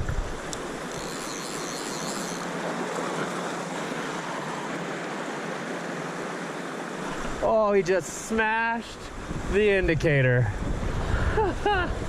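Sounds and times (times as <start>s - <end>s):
river water rushing over rocks: 0.0s - 8.7s.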